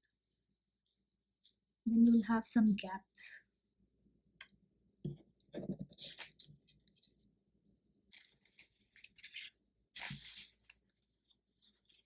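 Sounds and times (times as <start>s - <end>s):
paper scraping on table: 10.0s - 10.6s.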